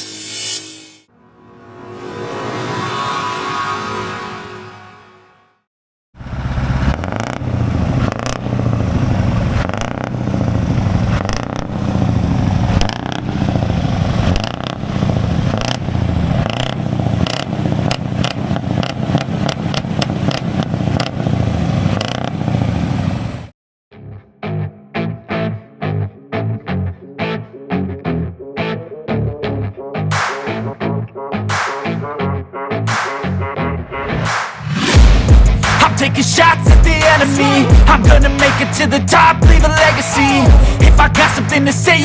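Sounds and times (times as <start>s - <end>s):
truck engine revving: 6.2s - 23.5s, 30.1s - 42.0s
exhaust cracks and pops: 6.8s - 22.7s.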